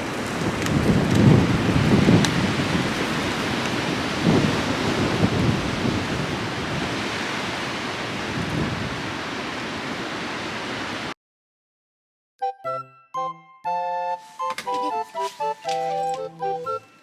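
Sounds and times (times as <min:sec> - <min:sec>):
wind blowing over microphone: 0:00.0 - 0:11.0.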